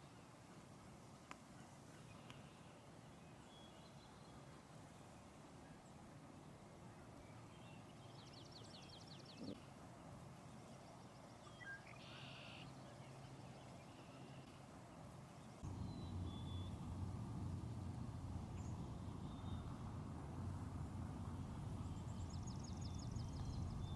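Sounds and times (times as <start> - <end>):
wild bird calls: 8.9 - 9.7
steady low noise: 15.6 - 23.9.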